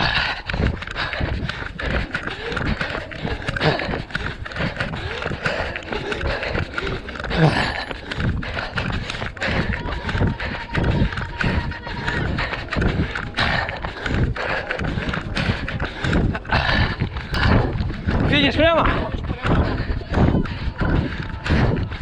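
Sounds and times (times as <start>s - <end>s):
background voices: 0.0s - 22.0s
running footsteps: 0.0s - 22.0s.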